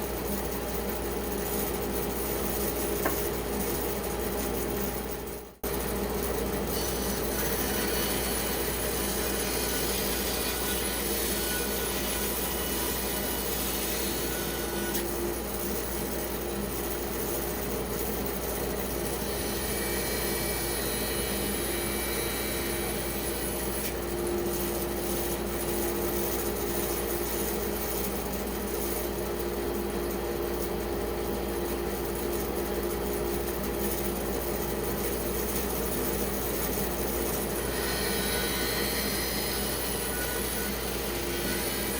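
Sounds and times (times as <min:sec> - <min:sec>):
bandsaw cutting log: 0:06.7 - 0:15.0.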